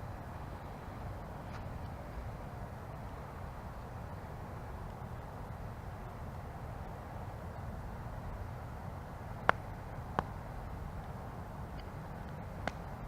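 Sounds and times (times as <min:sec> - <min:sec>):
campfire burning: 0:00.0 - 0:13.0
crackling wood pops: 0:11.7 - 0:12.9.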